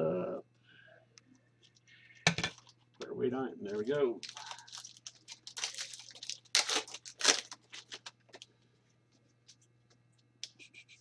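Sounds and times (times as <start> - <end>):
wrapper crinkling: 3.7 - 8.5
card pack wrapper tearing: 3.8 - 8.5.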